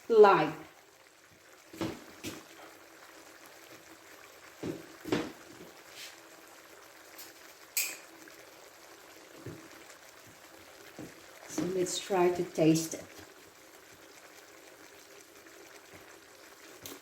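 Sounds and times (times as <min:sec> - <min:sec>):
food sizzling in a pan: 0:00.0 - 0:17.0
metal utensils clinking on pan: 0:07.2 - 0:08.1.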